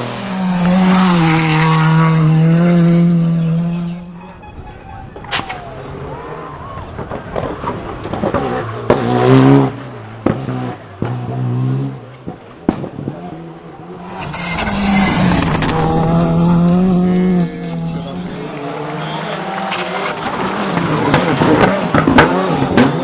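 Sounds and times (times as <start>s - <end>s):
rally car engine revving: 0.0s - 23.0s
exhaust cracks: 6.8s - 11.1s, 12.1s - 23.0s
tyre squeal on tarmac: 13.9s - 22.6s.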